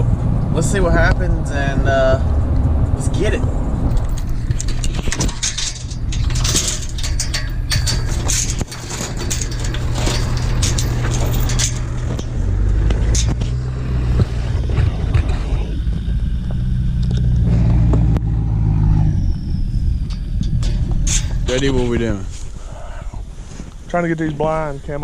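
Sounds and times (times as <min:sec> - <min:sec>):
vehicle engine running: 0:00.0 - 0:22.6
knocks and rattles: 0:02.5 - 0:18.2, 0:20.0 - 0:22.2.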